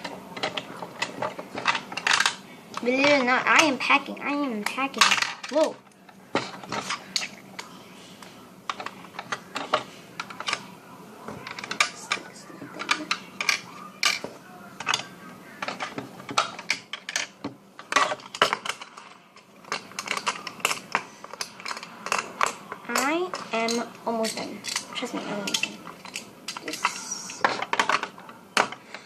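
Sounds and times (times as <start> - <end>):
plastic toy pieces clattering: 0.4 - 3.7, 4.7 - 5.8, 11.4 - 12.2, 12.8 - 28.8.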